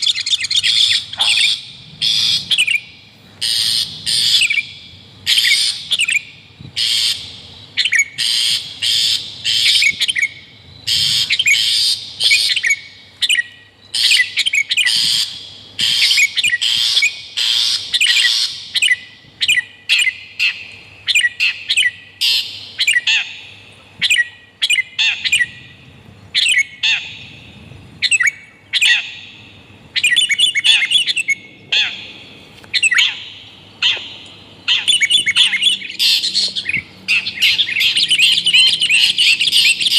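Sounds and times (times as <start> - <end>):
bulbul song: 0.0 - 39.9
shrike calls: 5.2 - 39.9.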